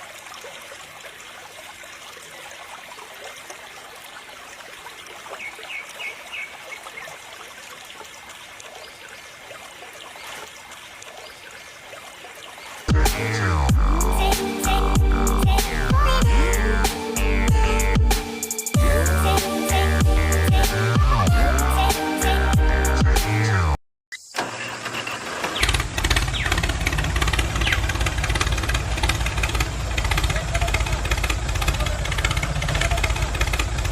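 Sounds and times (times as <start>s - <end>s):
water trickling and splashing: 0.0s - 13.7s, 25.3s - 33.9s
loud electronic music: 12.9s - 23.8s
engine starting and idling: 24.4s - 33.9s.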